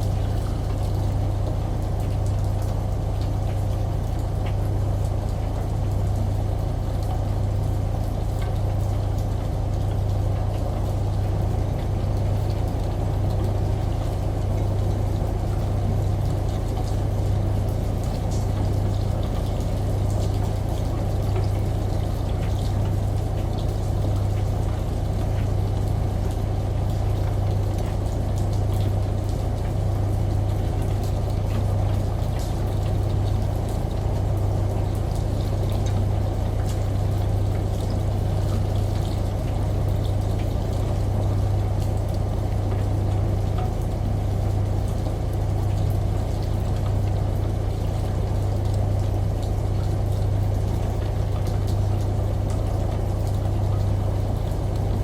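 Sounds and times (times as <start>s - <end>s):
washing machine humming: 0.0s - 55.0s.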